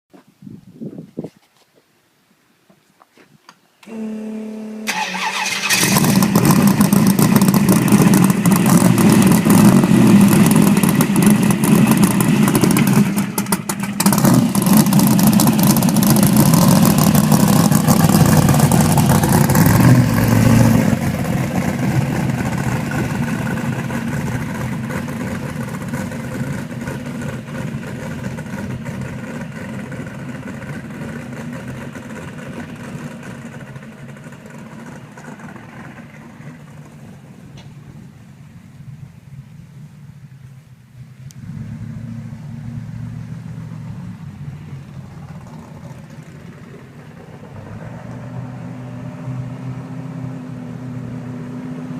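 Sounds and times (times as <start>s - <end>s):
loud race car engine running: 5.8s - 37.4s.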